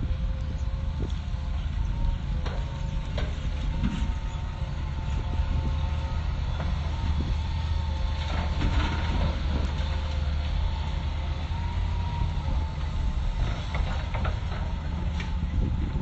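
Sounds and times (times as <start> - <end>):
excavator diesel engine rumble: 0.0 - 16.0.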